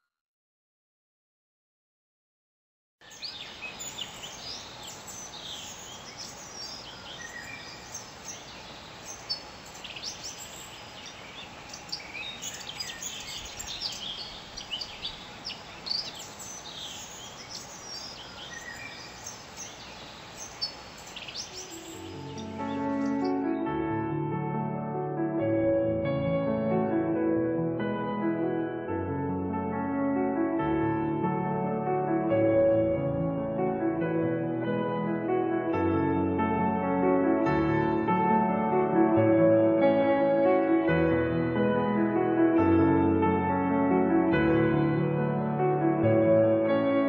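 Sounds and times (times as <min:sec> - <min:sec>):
outdoor background hiss: 0:03.0 - 0:23.6
birds chirping and singing: 0:03.0 - 0:23.7.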